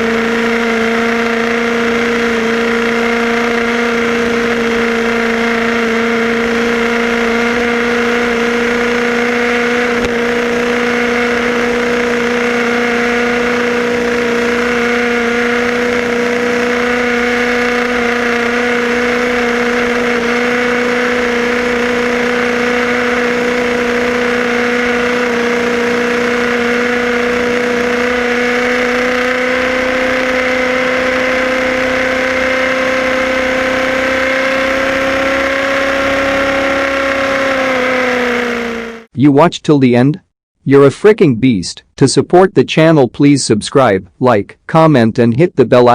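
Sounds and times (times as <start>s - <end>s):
radio-controlled car motor running: 0.0s - 33.8s.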